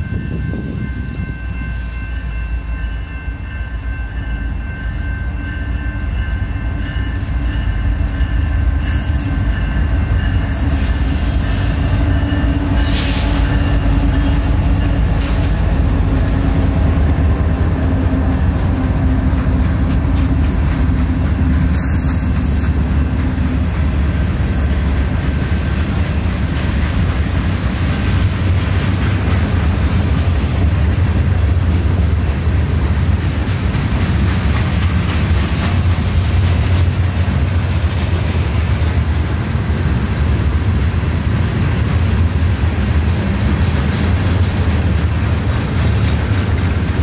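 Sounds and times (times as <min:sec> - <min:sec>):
freight train wheels rumbling: 0:00.0 - 0:47.0.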